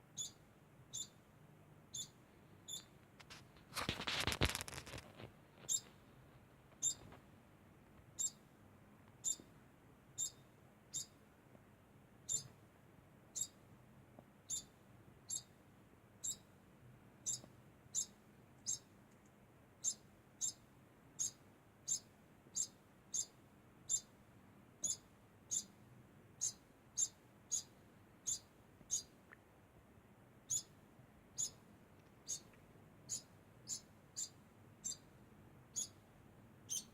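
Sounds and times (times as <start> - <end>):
degu squeaking: 0.2 - 1.2, 1.9 - 2.9, 5.6 - 5.9, 6.8 - 7.1, 8.2 - 8.4, 9.2 - 9.4, 10.2 - 11.2, 12.3 - 12.5, 13.4 - 13.6, 14.5 - 14.7, 15.3 - 15.5, 16.2 - 16.4, 17.2 - 18.8, 19.8 - 20.6, 21.2 - 22.0, 22.6 - 23.3, 23.9 - 24.1, 24.8 - 25.7, 26.4 - 29.1, 30.5 - 30.7, 31.4 - 31.6, 32.2 - 32.5, 33.1 - 35.1, 35.7 - 36.0, 36.7 - 36.9.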